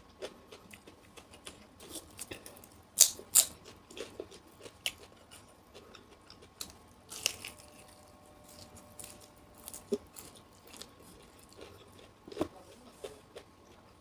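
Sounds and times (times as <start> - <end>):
chewing raw vegetables: 0.2 - 14.0.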